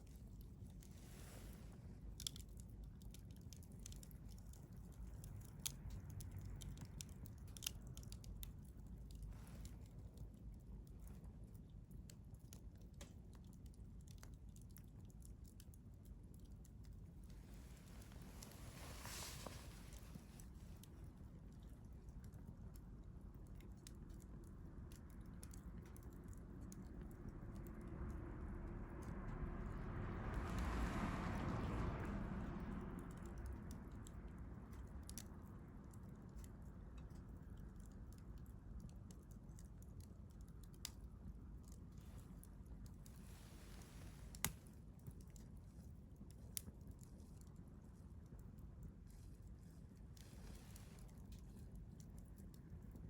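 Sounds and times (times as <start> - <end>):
low steady rumble: 0.0 - 53.0
wood fire crackling: 0.0 - 53.0.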